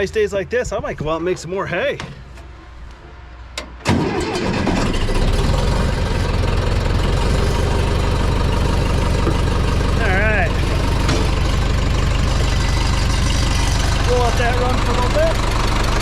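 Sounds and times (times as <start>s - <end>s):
tractor engine starting and idling: 3.6s - 16.0s.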